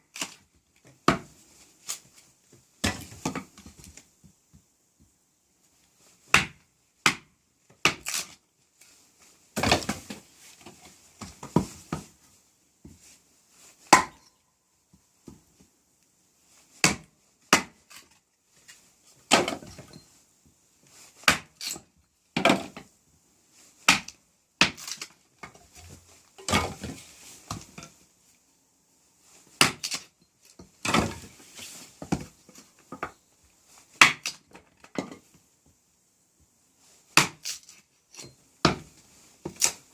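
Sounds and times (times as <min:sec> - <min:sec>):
wood splitting crackle: 0:07.9 - 0:08.4, 0:21.2 - 0:21.8, 0:23.8 - 0:25.2, 0:29.6 - 0:31.3, 0:37.2 - 0:38.8.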